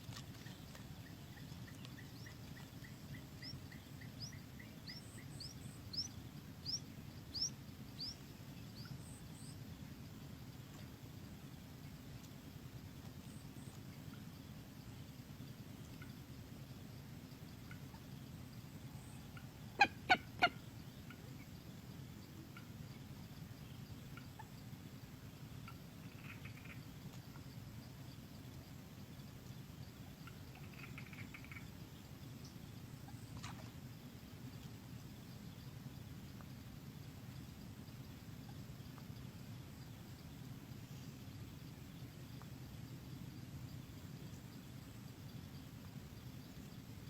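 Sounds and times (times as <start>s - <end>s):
steady low hum: 0.0s - 47.0s
moorhen calling: 0.1s - 9.6s, 19.1s - 21.6s.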